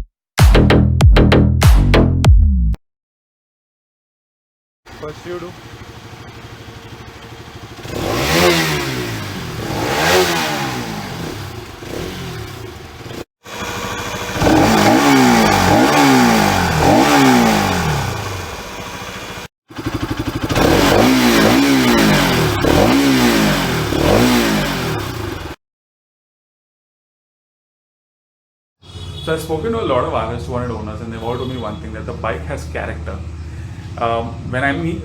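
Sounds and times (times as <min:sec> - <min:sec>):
motorcycle engine revving: 0:04.9 - 0:25.6.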